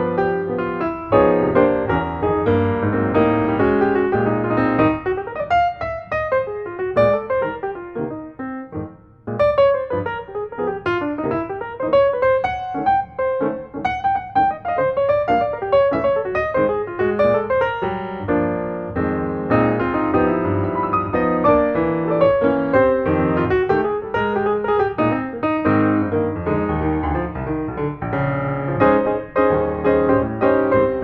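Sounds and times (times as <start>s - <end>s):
solo piano melody: 0.0s - 31.0s.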